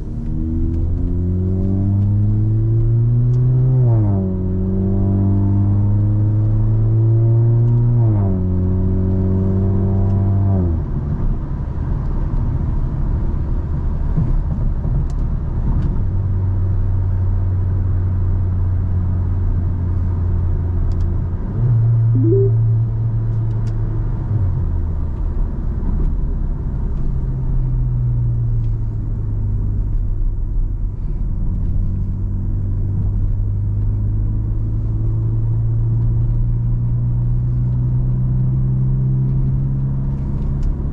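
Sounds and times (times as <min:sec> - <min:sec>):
car engine accelerating: 0:00.0 - 0:11.6.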